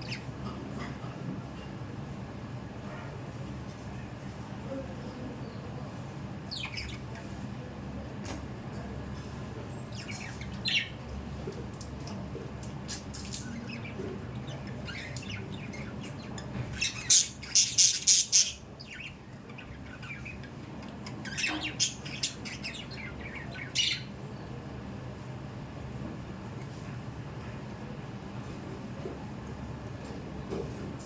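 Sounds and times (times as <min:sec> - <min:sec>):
budgerigars chirping and squawking: 0:00.0 - 0:00.3, 0:06.5 - 0:07.3, 0:09.8 - 0:11.1, 0:12.0 - 0:24.2
low background hum: 0:00.0 - 0:31.0.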